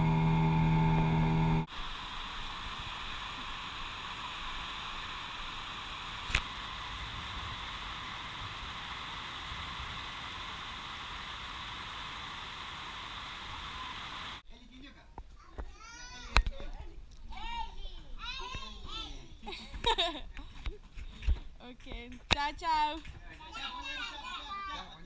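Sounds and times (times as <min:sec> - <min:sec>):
steady hiss: 0:01.6 - 0:14.4.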